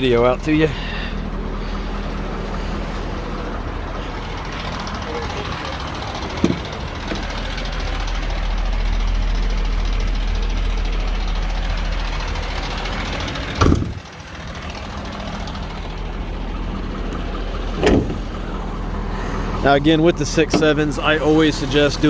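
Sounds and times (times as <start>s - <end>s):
diesel engine idling: 0.0s - 22.0s
engine knocks: 0.0s - 22.0s.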